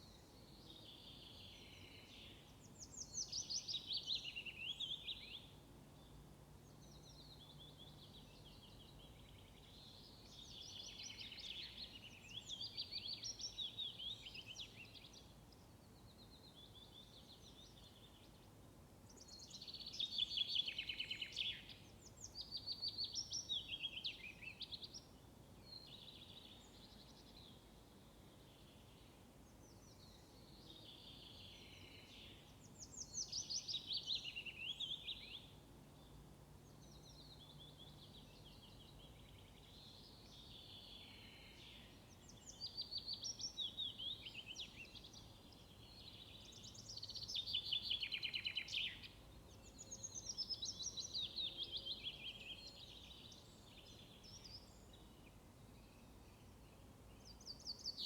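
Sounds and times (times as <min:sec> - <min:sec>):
faint low background noise: 0:00.0 - 0:58.0.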